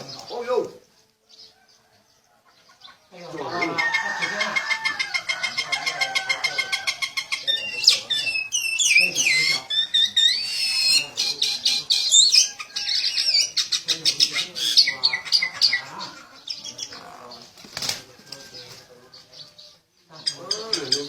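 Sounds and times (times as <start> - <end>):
high chirping calls: 0.0 - 21.0
wings flapping rapidly: 17.6 - 18.1.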